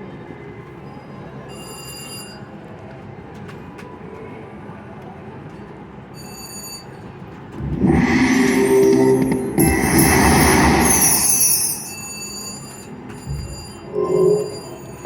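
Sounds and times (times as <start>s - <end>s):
hum of machines and people: 0.0s - 15.0s
electronic slot machine music: 7.6s - 12.7s, 13.3s - 15.0s
slot machine chimes: 7.7s - 15.0s.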